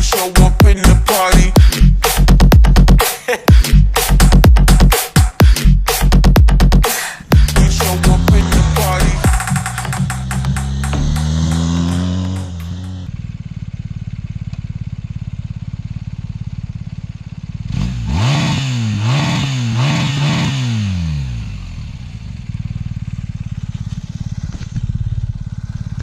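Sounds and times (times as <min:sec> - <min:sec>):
motorcycle engine idling and revving: 0:00.0 - 0:26.0.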